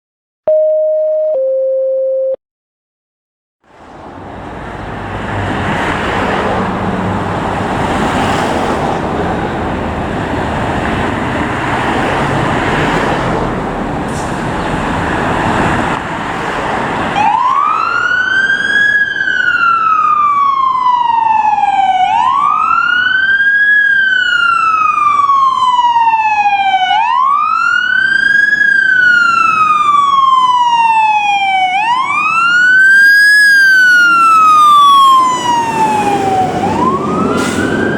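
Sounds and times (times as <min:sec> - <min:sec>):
fire truck rumble and rush: 0:03.6 - 0:37.9
electronic siren wailing: 0:17.2 - 0:37.9.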